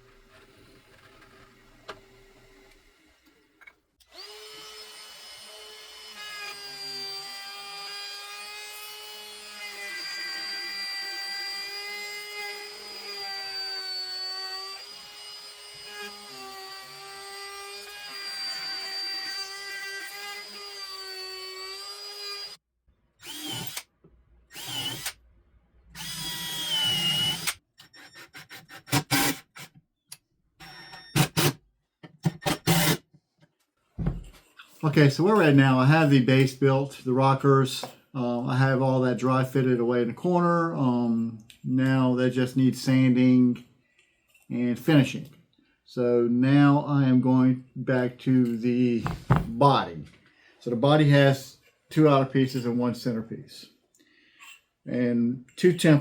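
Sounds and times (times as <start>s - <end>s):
power drill motor whine: 0.0s - 8.0s, 23.2s - 23.9s, 24.5s - 25.2s, 26.0s - 28.2s, 30.6s - 31.5s, 32.4s - 33.0s.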